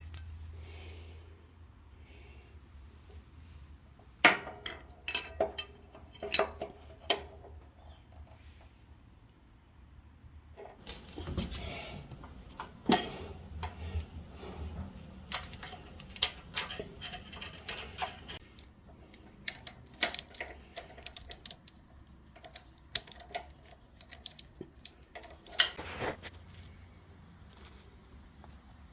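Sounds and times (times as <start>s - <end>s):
metal tools clicking and clanking: 4.4s - 7.4s, 10.7s - 25.8s
metal scrape: 10.8s - 18.4s.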